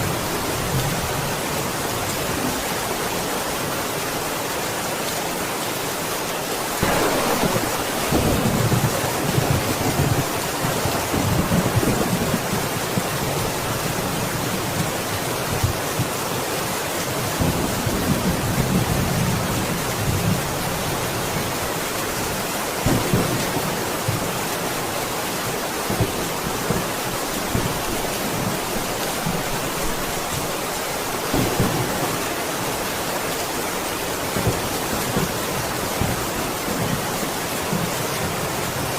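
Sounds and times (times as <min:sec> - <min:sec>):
heavy rain: 0:00.0 - 0:38.9
thunder cracking and rumbling: 0:06.8 - 0:13.1, 0:31.3 - 0:32.5.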